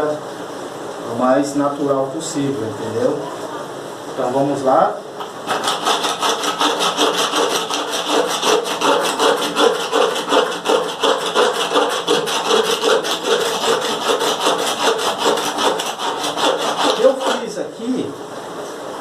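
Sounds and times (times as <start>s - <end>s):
paint scraping off wooden drum: 5.4s - 17.7s.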